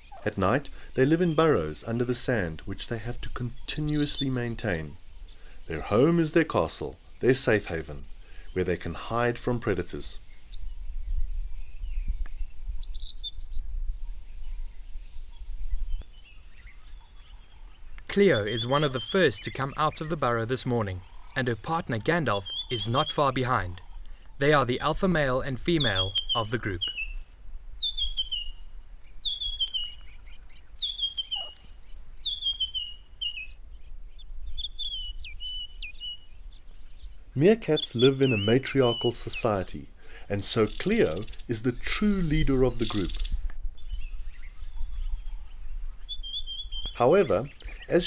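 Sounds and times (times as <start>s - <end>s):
birds chirping: 0.0s - 48.0s
bird singing descending phrase: 25.2s - 27.2s, 37.4s - 39.6s.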